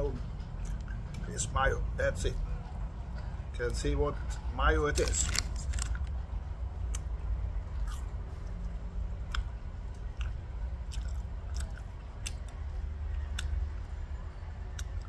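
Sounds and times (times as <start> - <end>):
steady low rumble: 0.0 - 15.0
person chewing fries: 4.9 - 6.1, 7.8 - 12.6, 13.2 - 13.6.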